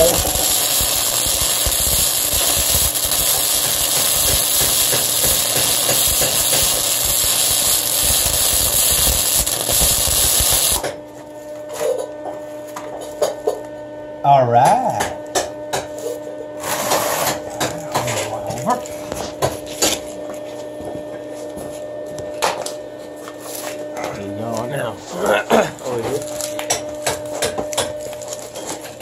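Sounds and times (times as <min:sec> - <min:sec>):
welding arc crackling and hissing: 0:00.0 - 0:10.9.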